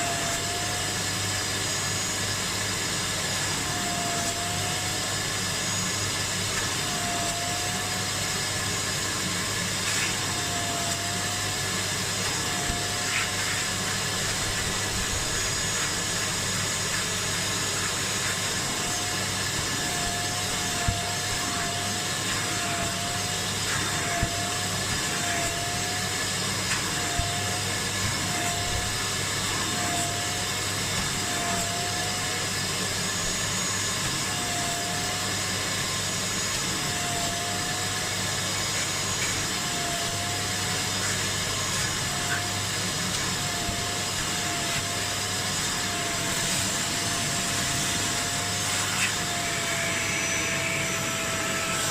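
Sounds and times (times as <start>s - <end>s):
spray extractor suction motor whine: 0.0s - 51.9s.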